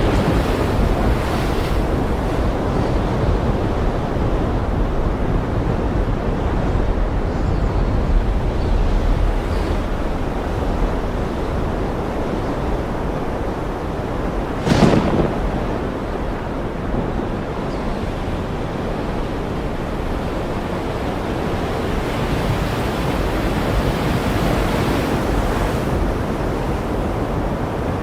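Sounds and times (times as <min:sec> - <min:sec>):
wave crashing: 0:00.0 - 0:06.2, 0:08.0 - 0:20.1
ocean waves washing in: 0:00.0 - 0:28.0.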